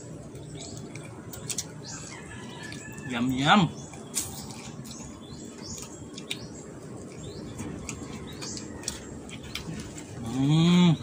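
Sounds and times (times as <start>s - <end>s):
birds chirping faintly: 0.0s - 11.0s
person humming: 10.2s - 11.0s.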